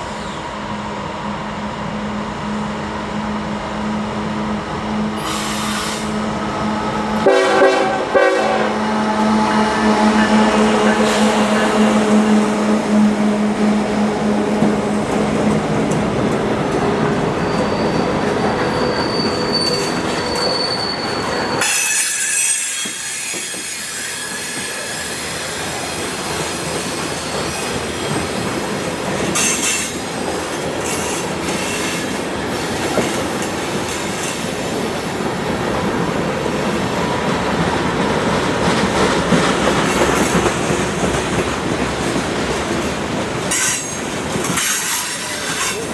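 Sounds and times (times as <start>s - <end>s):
freight train rolling past: 0.0s - 45.9s
steel wheels squealing: 17.1s - 30.1s, 43.5s - 45.9s
wheels clicking over rail joints: 36.9s - 45.9s.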